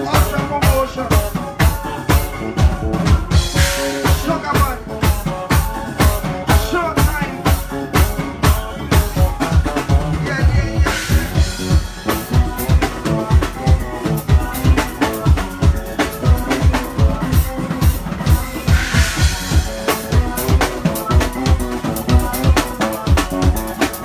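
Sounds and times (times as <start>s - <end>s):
live band playing up-tempo groove: 0.0s - 24.0s.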